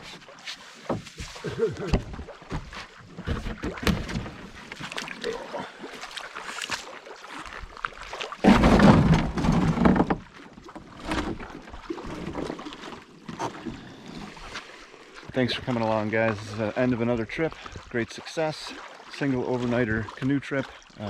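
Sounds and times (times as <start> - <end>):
water rushing: 0.0 - 21.0
water splashing against canoe hull: 0.0 - 21.0.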